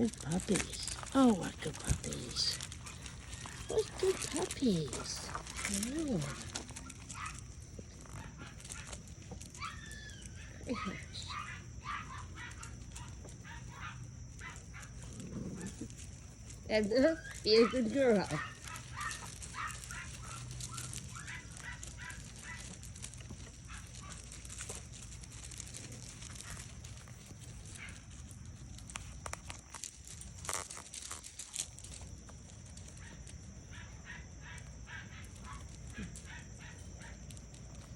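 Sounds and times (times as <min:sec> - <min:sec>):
puppies squeaking and yipping: 0:00.0 - 0:16.2, 0:16.8 - 0:24.8
steady high-pitched hiss: 0:00.0 - 0:37.9.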